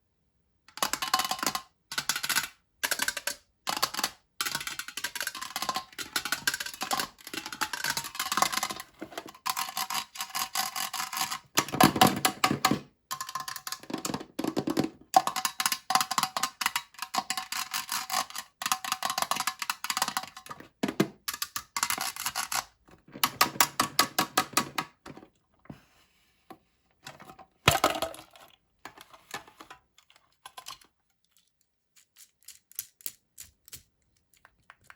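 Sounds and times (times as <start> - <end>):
sharp clicks and taps: 29.6 - 34.9.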